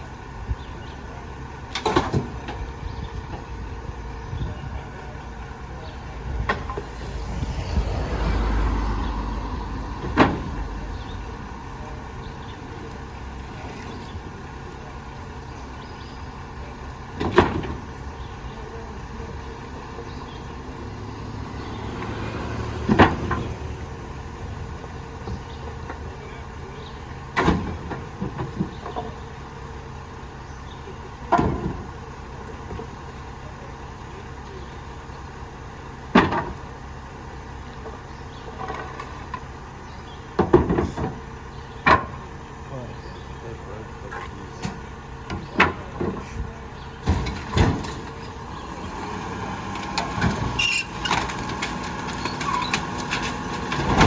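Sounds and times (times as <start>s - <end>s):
garbage truck engine hum: 0.0s - 54.0s
trash compactor bangs: 10.0s - 11.1s, 17.1s - 18.0s, 22.6s - 23.7s, 27.3s - 29.2s, 44.5s - 54.0s.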